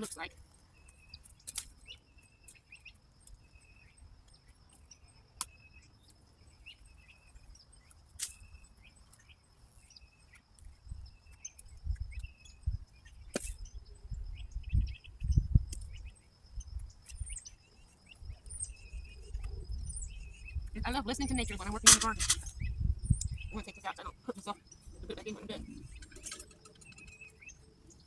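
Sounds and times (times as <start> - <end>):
bird chirping: 0.0 - 28.0
sharp clicks: 21.9 - 22.5.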